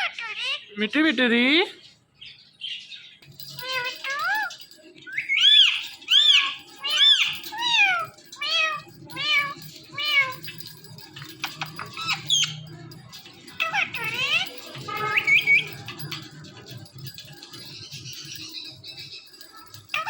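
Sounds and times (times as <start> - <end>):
parrot high chirps: 0.0 - 0.8, 2.8 - 20.0
parrot imitating cat meows: 6.4 - 10.5.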